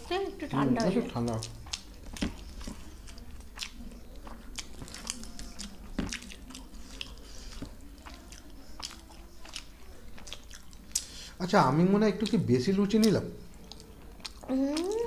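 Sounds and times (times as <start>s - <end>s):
people chewing with smacks and clicks: 0.0s - 15.0s.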